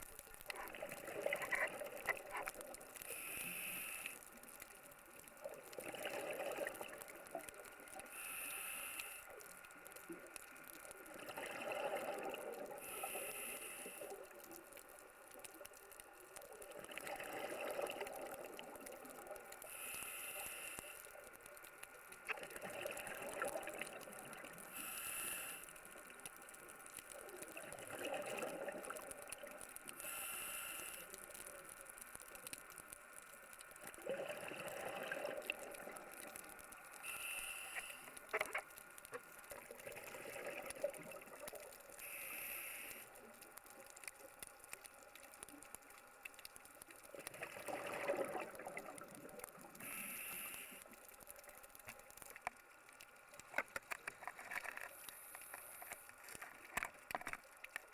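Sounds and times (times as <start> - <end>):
gurgle of exhaled bubbles: 0.0 - 2.7, 5.5 - 7.5, 11.1 - 12.8, 16.7 - 19.3, 22.3 - 24.6, 27.4 - 29.5, 33.8 - 36.3, 39.5 - 41.7, 47.1 - 49.8
regulator inhale hiss: 3.0 - 4.8, 8.0 - 9.7, 12.7 - 14.6, 19.6 - 21.4, 24.6 - 26.2, 29.9 - 31.6, 36.9 - 38.3, 41.8 - 43.3, 49.8 - 51.0, 55.0 - 56.2.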